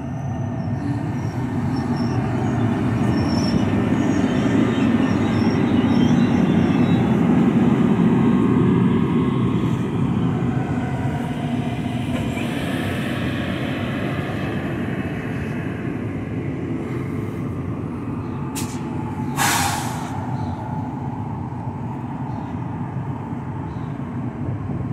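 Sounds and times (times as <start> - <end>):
train rumbling to a stop: 0.0 - 24.9
air brakes hissing: 18.5 - 20.6.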